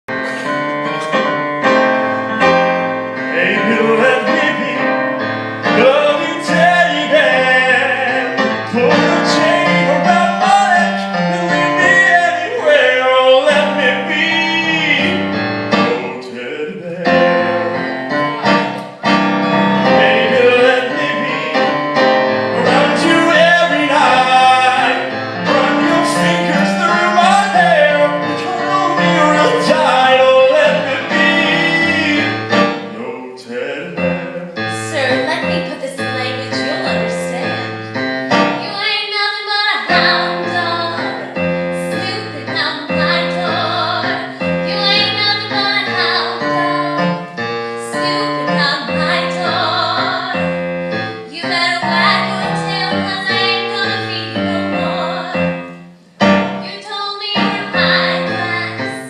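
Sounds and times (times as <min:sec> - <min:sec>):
piano accompaniment: 0:00.0 - 0:59.0
people singing long notes: 0:22.5 - 0:34.7.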